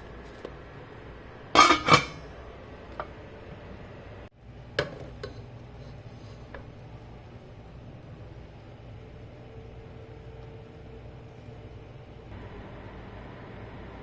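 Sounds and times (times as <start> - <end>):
low steady hum: 0.0 - 14.0
metal cookware clattering: 1.5 - 2.4.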